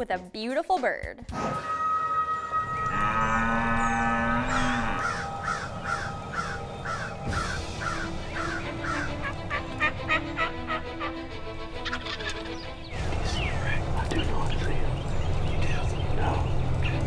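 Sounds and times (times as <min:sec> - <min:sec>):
background music: 0:00.0 - 0:17.0
wild turkey yelping: 0:04.4 - 0:12.8.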